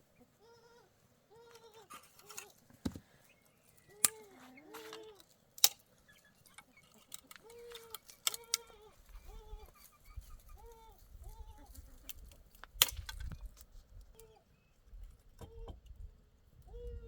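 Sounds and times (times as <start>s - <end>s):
short bleating calls: 0.4s - 2.5s, 7.4s - 9.9s.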